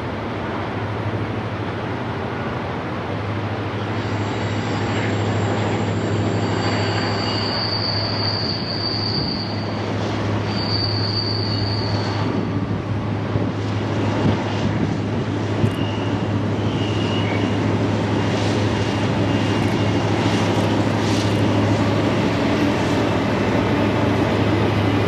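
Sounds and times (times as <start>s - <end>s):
train wheels on rails: 0.0s - 25.0s
lower wheel squeal: 3.8s - 12.4s, 15.5s - 23.1s
high-pitched wheel squeal: 4.0s - 12.4s, 15.6s - 17.6s, 18.4s - 21.8s.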